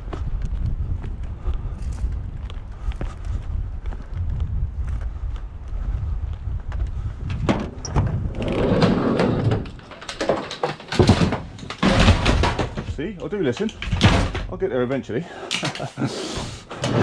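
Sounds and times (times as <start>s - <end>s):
wind rumble on microphone: 0.0s - 9.9s
rolling rattling noise: 7.3s - 17.0s
sharp knocks: 9.3s - 13.1s.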